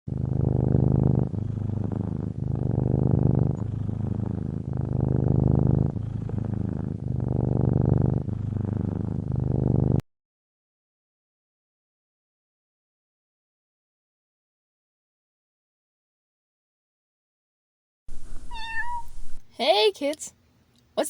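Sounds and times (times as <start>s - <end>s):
cat purring: 0.1s - 10.0s, 18.1s - 19.5s.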